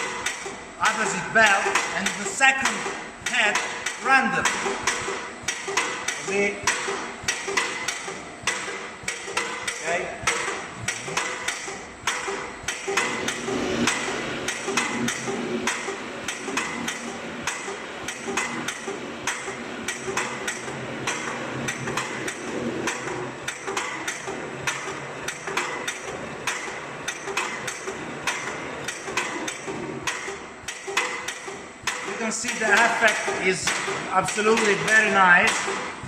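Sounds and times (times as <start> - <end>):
machine running: 0.0 - 36.0.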